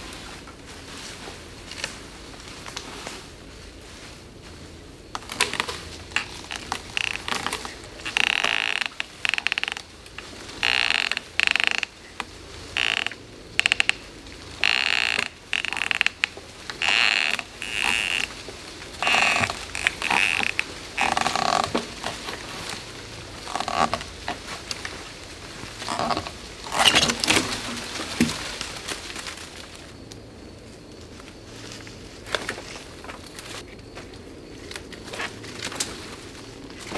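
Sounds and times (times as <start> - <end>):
wood creaking and cracking: 5.2 - 29.6.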